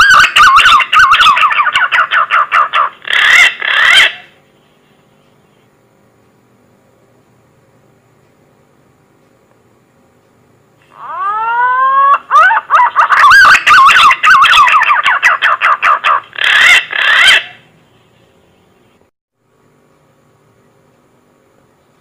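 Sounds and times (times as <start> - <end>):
pigeon call whistles: 0.0 - 4.3, 11.0 - 17.6.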